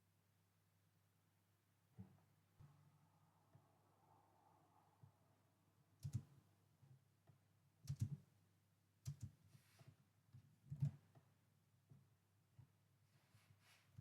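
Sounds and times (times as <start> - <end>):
computer keyboard keys clicking: 6.0 - 6.3, 7.9 - 8.2, 9.0 - 9.3.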